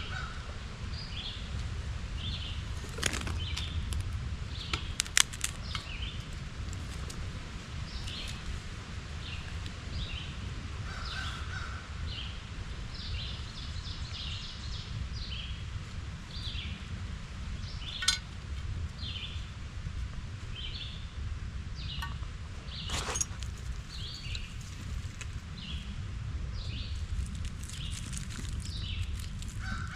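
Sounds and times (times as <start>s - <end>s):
steady low rumble: 0.0s - 29.9s
birds chirping: 17.6s - 18.4s, 21.8s - 25.9s.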